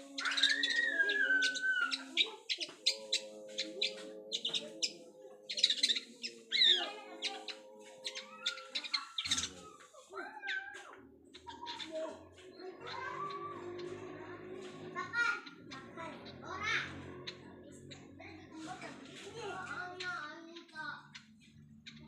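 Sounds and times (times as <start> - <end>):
bird chirps and whistles: 0.2 - 4.6.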